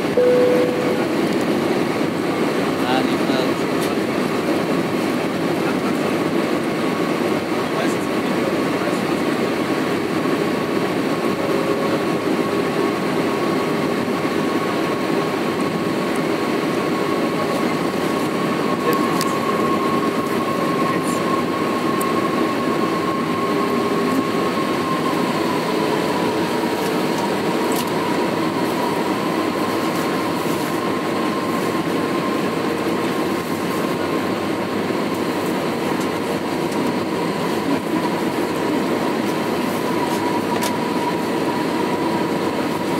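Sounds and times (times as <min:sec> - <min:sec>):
thin engine whine: 0:00.0 - 0:02.2
airliner cabin noise: 0:00.0 - 0:42.9.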